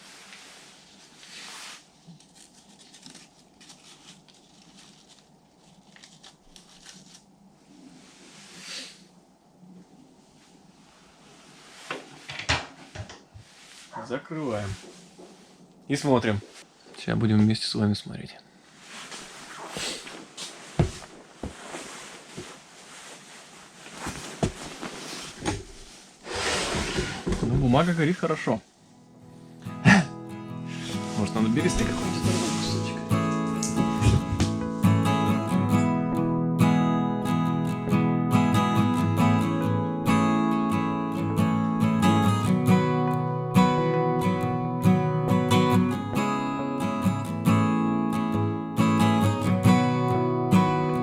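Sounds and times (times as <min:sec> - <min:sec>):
newspaper crinkling in fire: 0:01.8 - 0:07.5.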